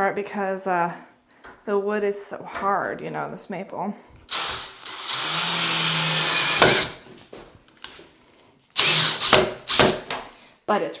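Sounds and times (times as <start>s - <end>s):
power drill drilling into wood: 4.3s - 7.0s, 8.8s - 10.1s.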